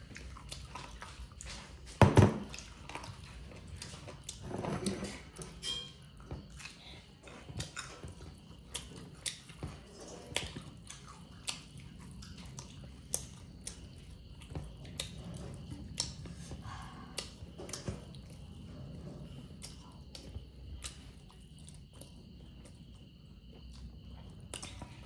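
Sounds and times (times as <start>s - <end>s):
person chewing and crunching: 0.0s - 4.5s, 5.2s - 18.6s.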